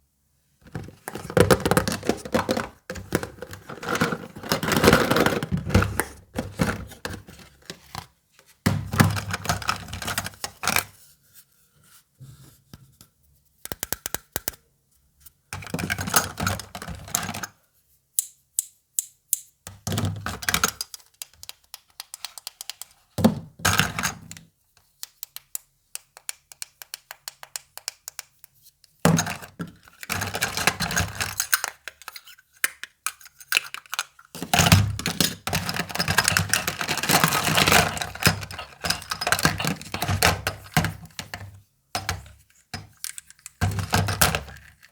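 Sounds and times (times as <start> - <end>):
plastic toy clicks and taps: 13.7 - 14.6, 20.6 - 23.0, 25.0 - 28.6.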